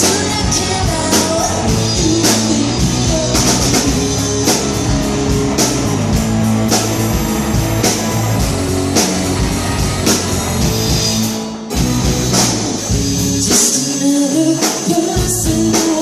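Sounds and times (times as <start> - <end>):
live rock band playing: 0.0 - 16.0
drum or cymbal hits: 3.5 - 13.6.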